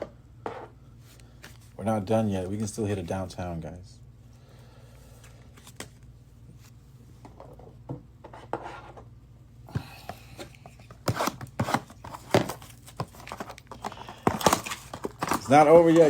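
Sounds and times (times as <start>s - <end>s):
cards rubbing and sliding: 10.4s - 16.0s.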